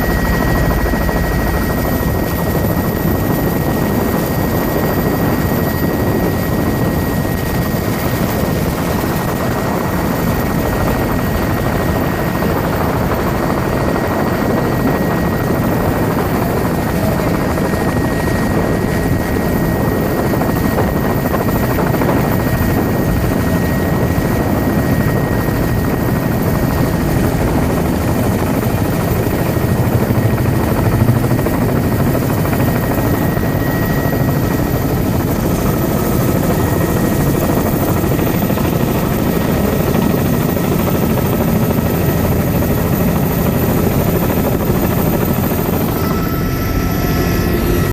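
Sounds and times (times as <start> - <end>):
high-pitched whine: 0.0 - 7.6
helicopter rotor and engine: 0.0 - 47.9.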